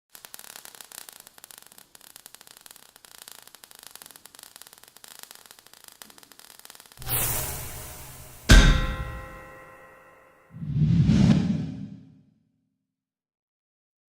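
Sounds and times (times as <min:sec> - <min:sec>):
crackling static: 0:00.1 - 0:07.1.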